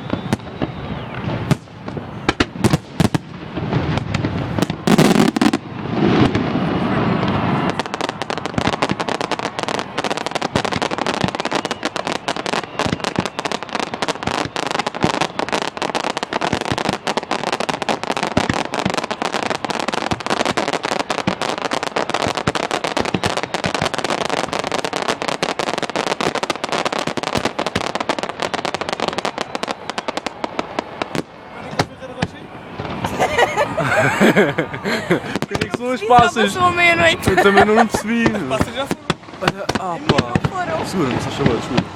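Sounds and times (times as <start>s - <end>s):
fireworks crackling and banging: 0.0s - 41.9s.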